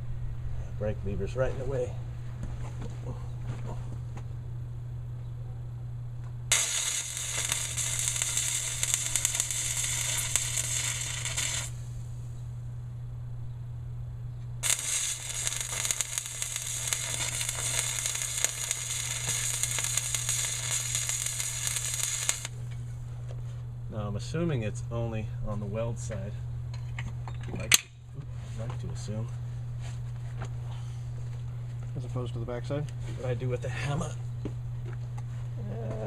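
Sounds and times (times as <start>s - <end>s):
steady low hum: 0.0s - 36.0s
arc welder crackling: 6.2s - 12.3s, 14.5s - 22.8s.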